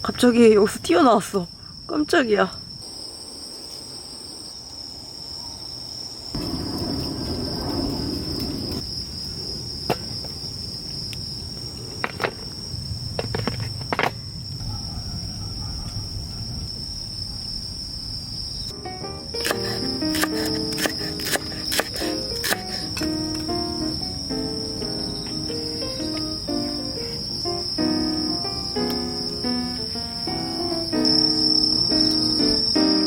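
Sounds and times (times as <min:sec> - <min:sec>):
insects chirring: 0:00.0 - 0:33.0
sharp clicks: 0:19.4 - 0:23.1.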